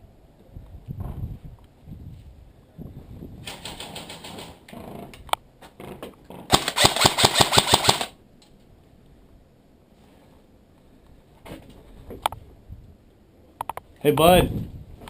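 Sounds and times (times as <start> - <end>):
airsoft rifle full-auto burst: 6.5 - 8.2.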